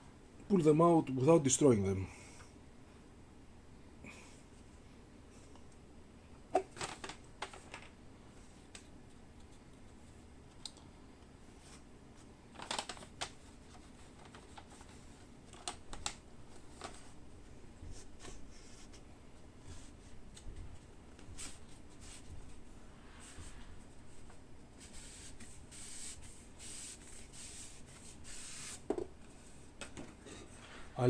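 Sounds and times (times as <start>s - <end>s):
paper sheets clicking and rustling: 6.6s - 8.9s, 12.5s - 17.2s.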